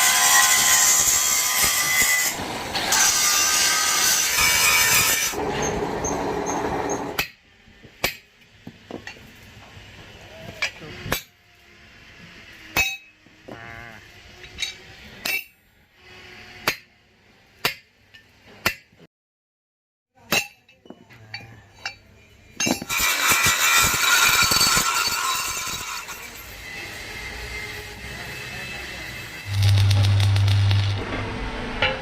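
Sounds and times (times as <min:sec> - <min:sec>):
harsh metal-working noise: 0:00.0 - 0:07.4, 0:22.6 - 0:32.0
hammer striking steel: 0:12.8 - 0:13.2, 0:29.5 - 0:32.0.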